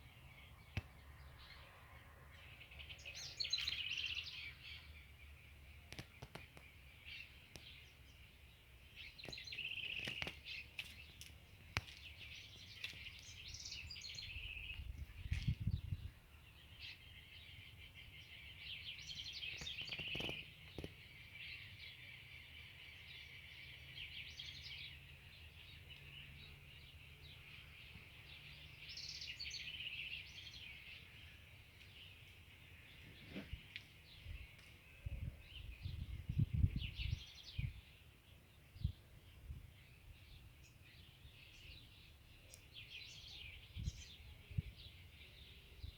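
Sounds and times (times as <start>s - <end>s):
songbirds chirping and twittering: 0.0s - 45.9s.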